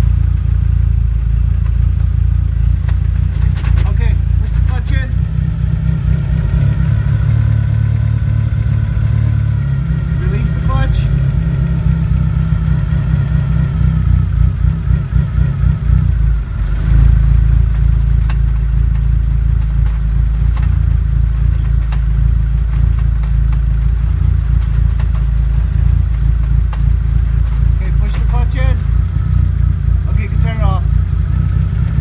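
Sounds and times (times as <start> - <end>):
car low rumble: 0.0 - 32.0.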